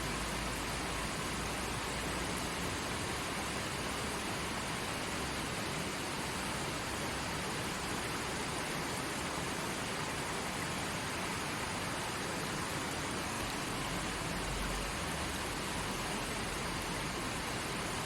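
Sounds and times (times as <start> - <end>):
forest stream flowing: 0.0 - 18.0.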